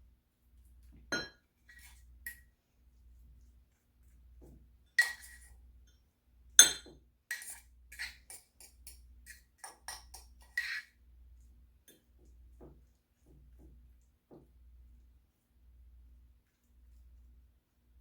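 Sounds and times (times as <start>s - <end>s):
spoon clinking against bowl: 1.1s - 1.4s, 5.0s - 5.4s, 6.6s - 10.9s
spoon scraping bowl: 1.6s - 2.4s, 5.0s - 5.6s, 7.3s - 11.0s.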